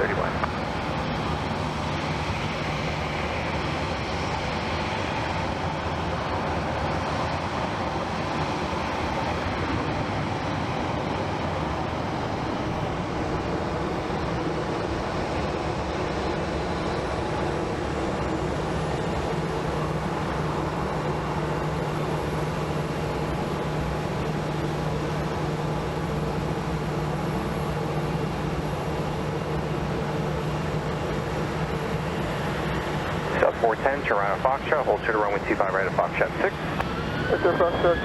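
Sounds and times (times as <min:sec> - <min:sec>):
jet engines steady noise: 0:00.0 - 0:38.0.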